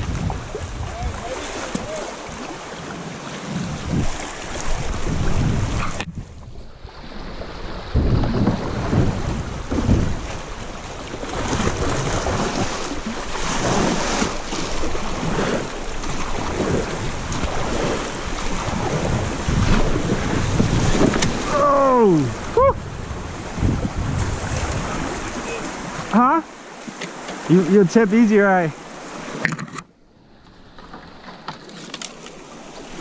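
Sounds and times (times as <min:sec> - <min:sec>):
wind buffeting microphone: 0:00.0 - 0:02.5, 0:03.4 - 0:26.1
rushing water splashing: 0:00.0 - 0:33.0
person crying out: 0:21.4 - 0:22.8.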